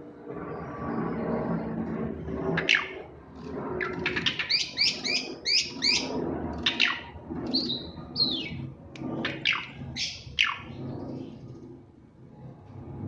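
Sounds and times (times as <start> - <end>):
bird chirping and whistling: 2.6 - 3.0, 3.8 - 8.6, 9.2 - 10.8.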